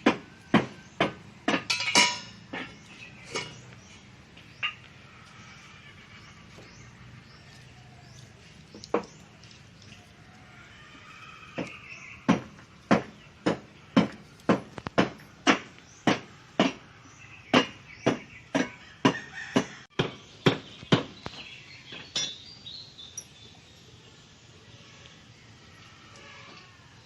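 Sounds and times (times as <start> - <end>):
hammer striking: 12.3 - 16.8.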